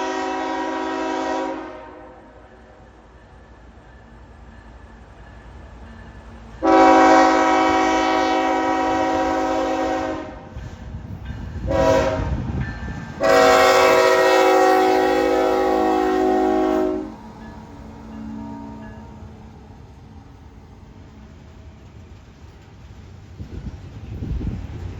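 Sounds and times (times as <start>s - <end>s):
locomotive air horn blasts: 0.0s - 2.5s, 6.6s - 10.6s, 11.7s - 12.5s, 13.2s - 17.2s, 18.1s - 19.2s
train rumble: 0.0s - 24.9s.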